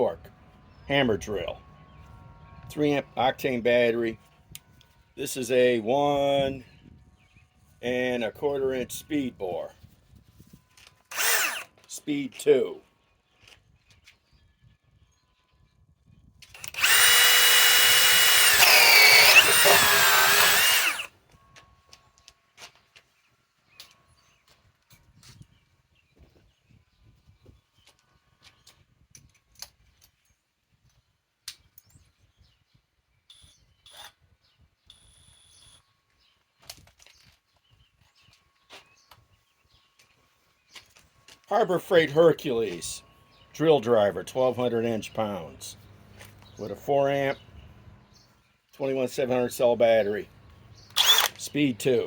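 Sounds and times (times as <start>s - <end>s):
sharp clicks: 11.1s - 11.7s, 16.4s - 21.1s, 50.5s - 51.5s
cordless drill boring into wood: 11.1s - 11.9s, 16.4s - 21.1s, 50.7s - 51.6s.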